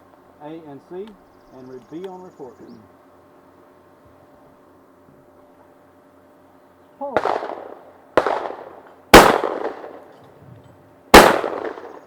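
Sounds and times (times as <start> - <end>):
shotgun blasts with echo: 7.2 - 10.1, 11.1 - 12.0.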